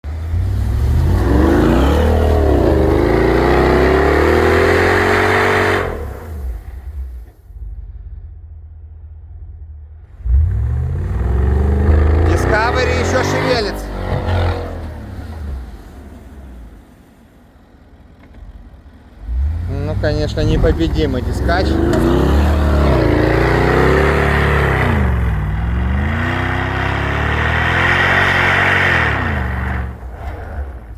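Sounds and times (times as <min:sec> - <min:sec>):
car engine revving: 0:00.0 - 0:30.9.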